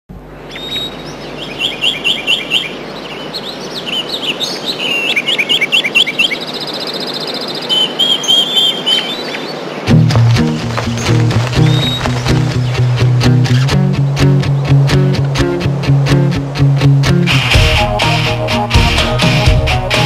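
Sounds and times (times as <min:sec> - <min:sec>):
outdoor ambience hiss: 0:00.1 - 0:20.0
birds chirping and trilling: 0:00.2 - 0:15.2
music with low bass note: 0:09.9 - 0:20.0.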